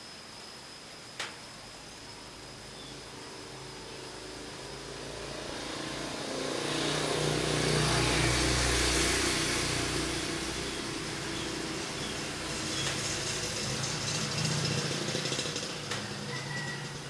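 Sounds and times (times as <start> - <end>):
motor vehicle passing by: 3.5 - 17.0.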